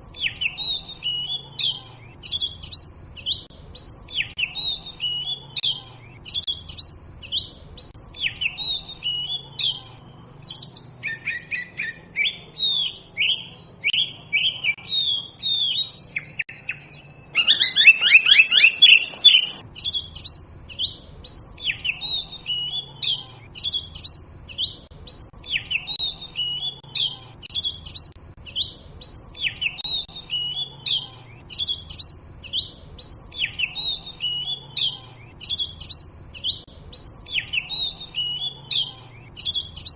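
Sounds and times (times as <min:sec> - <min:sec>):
bird whistling song: 0:00.0 - 0:39.9
harsh rattling bird call: 0:10.6 - 0:20.8.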